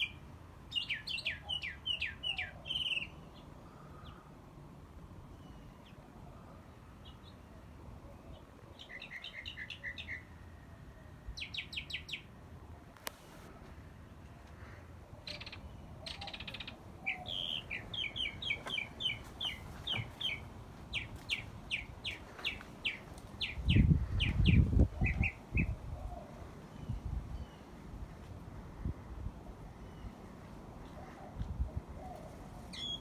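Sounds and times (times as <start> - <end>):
birds chirping: 14.1 - 27.8, 29.7 - 33.0.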